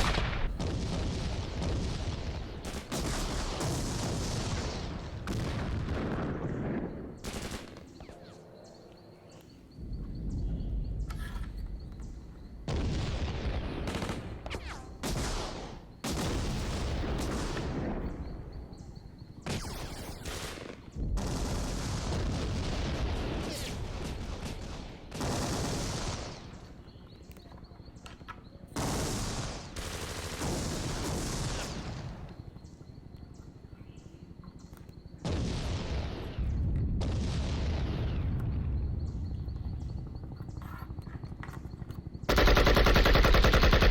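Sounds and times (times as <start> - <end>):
machine-gun and rifle fire: 0.0 - 8.0, 19.5 - 26.7, 28.8 - 32.2, 42.2 - 43.9.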